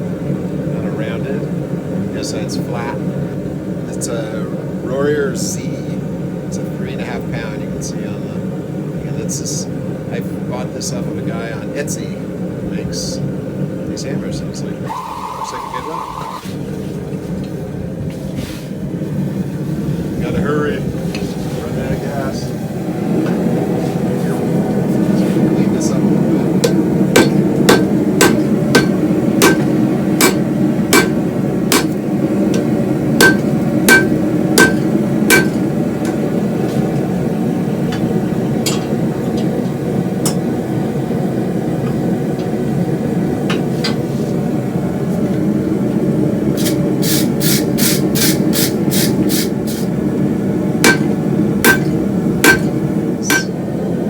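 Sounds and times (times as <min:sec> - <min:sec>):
gas forge burner roar: 0:00.0 - 0:54.0
hammer ringing on anvil: 0:26.6 - 0:32.0, 0:33.2 - 0:35.6, 0:50.8 - 0:53.6.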